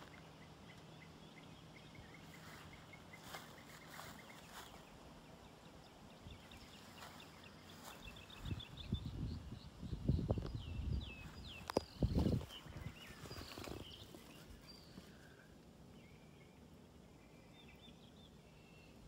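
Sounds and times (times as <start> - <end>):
soft rustles: 2.3 - 4.8, 11.6 - 15.4.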